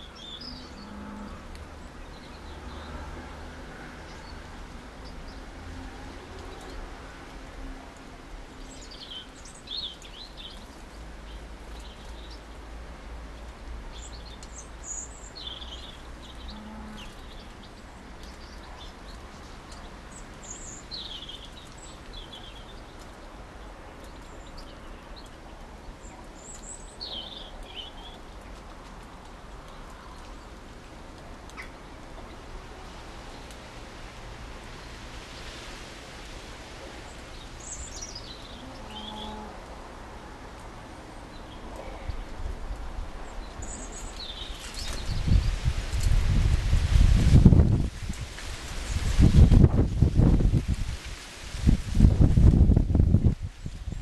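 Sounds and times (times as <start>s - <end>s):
songbird calling: 37.6s - 39.5s.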